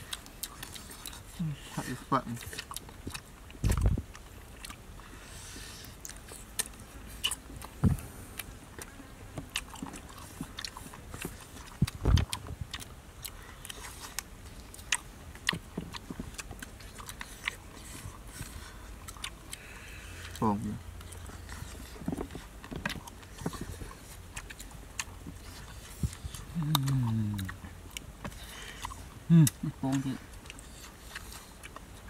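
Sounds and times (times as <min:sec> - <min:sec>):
wet chewing and crunching: 0:00.0 - 0:32.0
dull thumps: 0:07.8 - 0:08.1.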